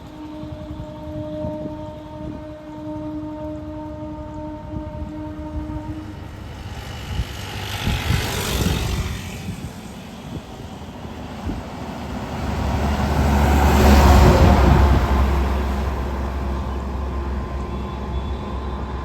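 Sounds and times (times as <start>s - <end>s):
vehicles passing: 5.5s - 19.0s.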